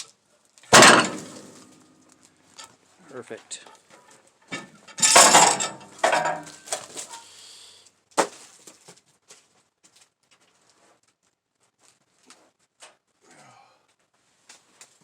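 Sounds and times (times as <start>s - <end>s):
wood and gear clattering: 0.7s - 1.9s, 3.7s - 7.2s.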